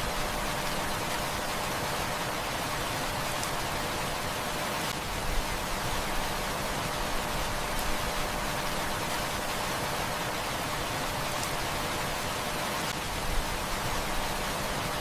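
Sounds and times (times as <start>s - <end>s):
faint wood fire crackles: 2.0s - 6.0s, 6.8s - 14.3s.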